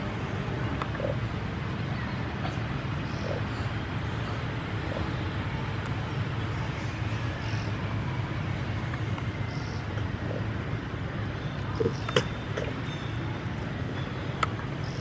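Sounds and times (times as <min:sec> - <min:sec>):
low rumble with hiss: 0:00.0 - 0:15.0.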